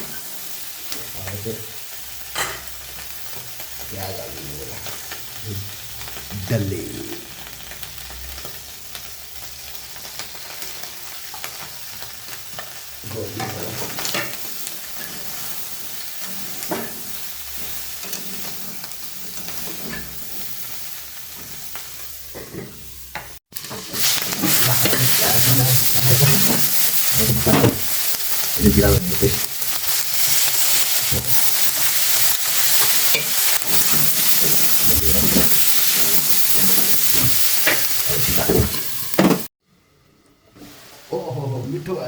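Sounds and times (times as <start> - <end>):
chicken and onion sizzling in pan: 0.0 - 42.0
spoon scraping and knocking pan: 16.2 - 20.5, 22.3 - 28.2, 29.8 - 39.5.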